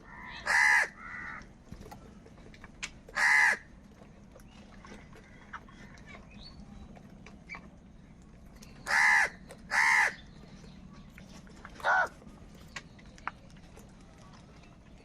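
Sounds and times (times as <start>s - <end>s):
crow cawing: 0.0s - 1.4s, 3.1s - 3.6s, 8.9s - 10.2s, 11.8s - 12.1s.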